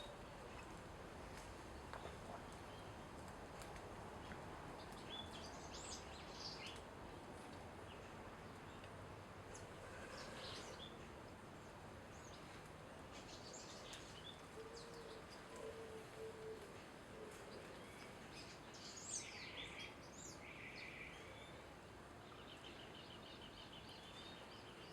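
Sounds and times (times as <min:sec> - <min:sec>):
steady background hiss: 0:00.0 - 0:24.9.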